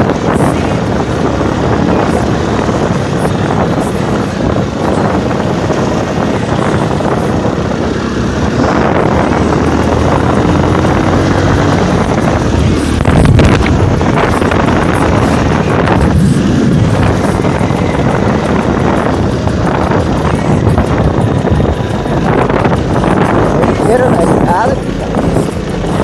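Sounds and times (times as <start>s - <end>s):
motorcycle engine running: 0.0s - 26.0s
wind rushing over microphone: 0.0s - 26.0s.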